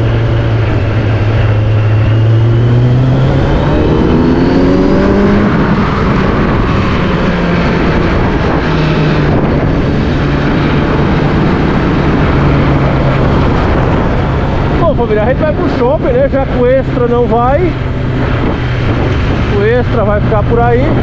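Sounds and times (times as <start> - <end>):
heavy wind noise: 0.0 - 21.0
road noise: 0.0 - 21.0
vehicle engine accelerating: 0.0 - 21.0.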